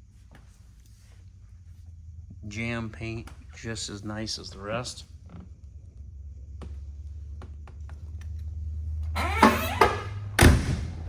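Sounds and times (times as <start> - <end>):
car door scraping and creaking: 9.2 - 10.4.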